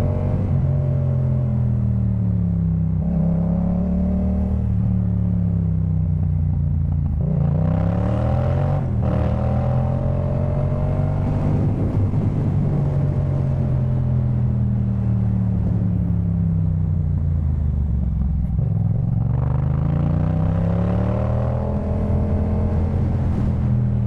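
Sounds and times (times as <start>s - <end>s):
motorcycle engine revving: 6.7s - 16.4s, 18.1s - 24.0s.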